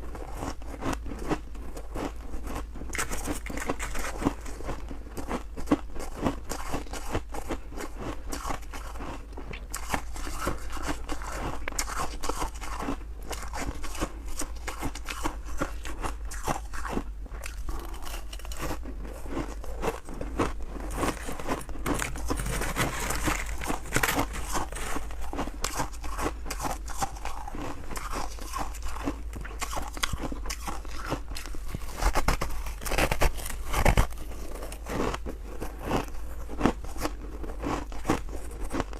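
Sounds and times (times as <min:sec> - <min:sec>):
chewing crunchy frost: 0:00.0 - 0:38.9.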